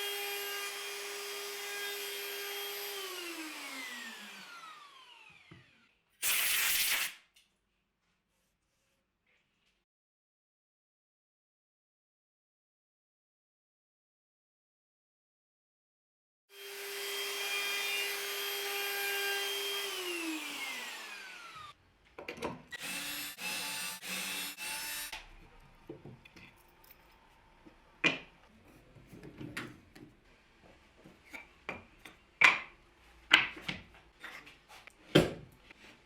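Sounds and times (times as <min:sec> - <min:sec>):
power tool cutting wood: 0:00.0 - 0:06.6, 0:16.5 - 0:21.8, 0:22.7 - 0:25.6.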